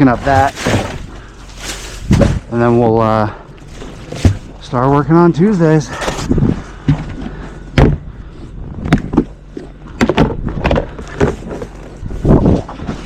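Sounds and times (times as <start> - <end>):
thuds and bangs: 0.3 - 1.1, 2.0 - 2.5, 7.8 - 8.1.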